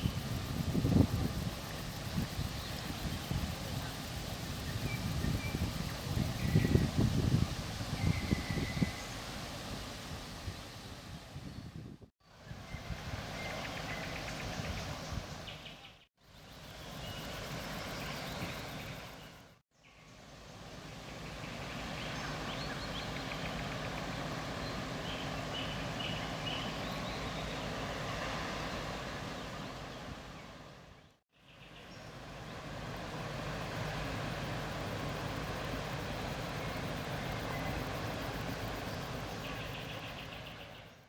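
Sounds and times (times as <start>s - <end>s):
wind on microphone: 0.0s - 15.6s
steady noisy rumble: 32.1s - 40.8s.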